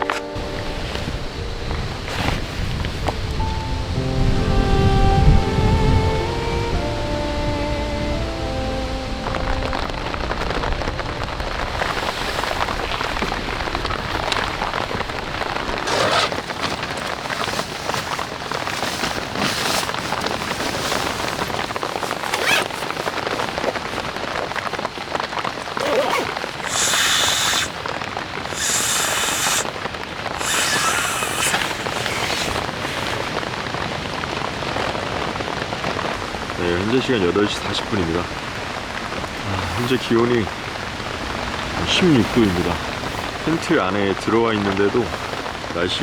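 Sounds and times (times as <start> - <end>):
steady rain falling: 0.0 - 46.0
rustling bursts: 11.3 - 34.2, 39.0 - 44.1.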